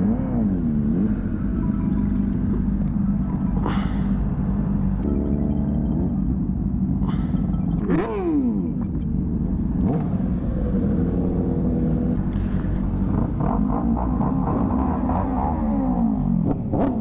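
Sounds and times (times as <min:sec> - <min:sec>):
motorcycle engine idling: 0:00.0 - 0:13.3
motorcycle engine revving: 0:00.0 - 0:17.0.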